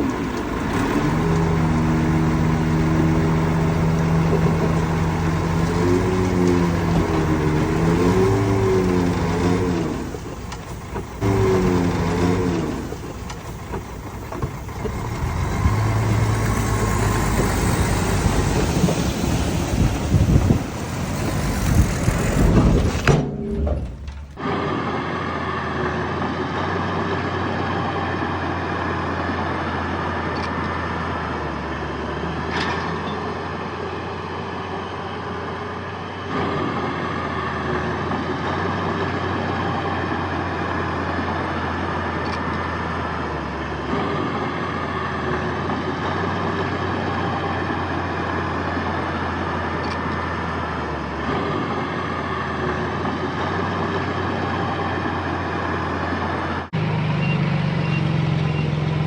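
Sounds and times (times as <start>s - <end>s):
loud rough noise: 0.0s - 26.2s
heavy diesel engine running: 0.0s - 32.5s, 33.2s - 59.0s.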